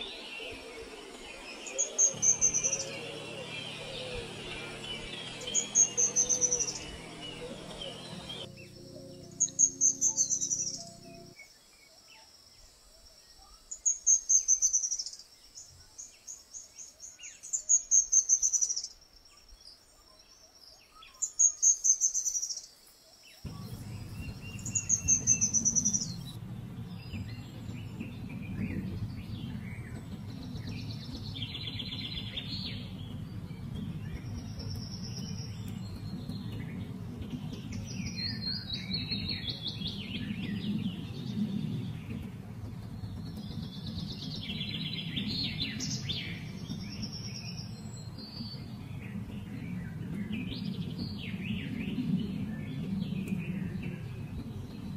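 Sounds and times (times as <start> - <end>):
birds chirping and calling: 0.0 - 11.4, 23.5 - 54.9
low background noise: 0.0 - 54.9.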